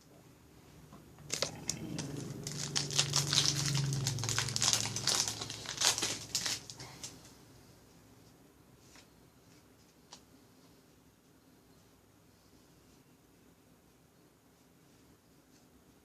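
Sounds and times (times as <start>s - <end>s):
foil wrapper tearing and crinkling: 1.3s - 7.1s.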